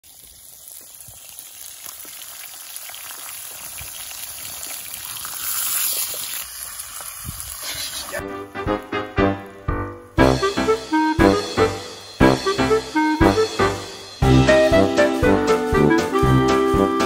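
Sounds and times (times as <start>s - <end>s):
meat and eggs sizzling in a pan: 0.0s - 10.4s
fire crackles: 0.0s - 12.4s.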